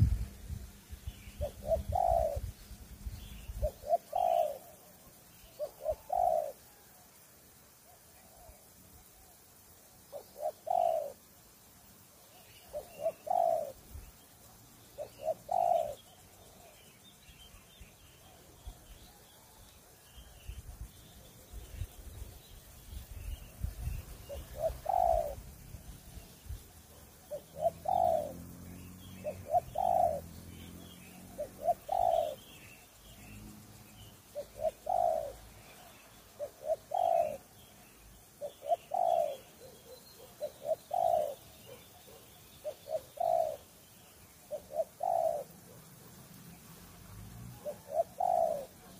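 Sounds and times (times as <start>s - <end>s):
small birds chirping: 0.0s - 48.9s
dove cooing: 1.3s - 2.5s, 3.4s - 7.0s, 10.1s - 11.3s, 12.6s - 13.9s, 14.9s - 16.8s, 23.3s - 33.4s, 34.2s - 37.7s, 38.3s - 46.3s, 47.4s - 48.9s.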